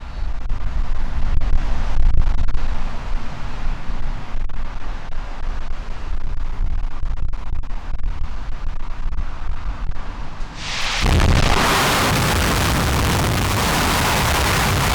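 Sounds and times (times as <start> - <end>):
rocket engine rumble: 10.5 - 14.9
sharp crackles: 10.6 - 14.9.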